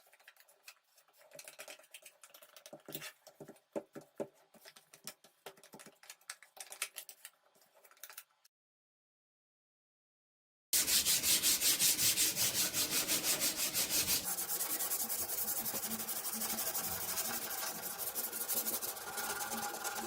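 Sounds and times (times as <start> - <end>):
putty knife scraping metal: 10.8 - 14.3.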